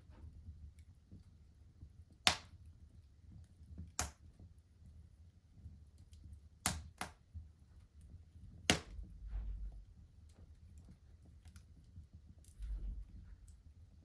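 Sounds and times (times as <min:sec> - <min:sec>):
low rumble of flames: 0:00.0 - 0:14.0
wood fire crackling: 0:00.0 - 0:14.0
sharp fire pops: 0:08.6 - 0:09.5.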